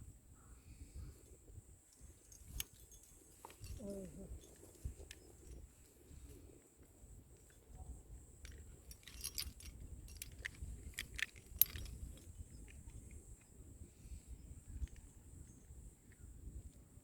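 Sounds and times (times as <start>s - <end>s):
metal climbing hardware clinking: 1.9s - 6.4s, 7.3s - 13.5s.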